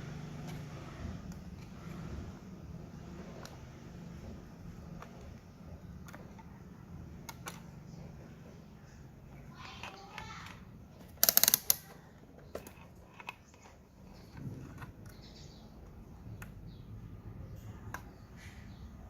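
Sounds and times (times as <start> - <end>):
rapid sharp clicks: 11.1 - 12.0.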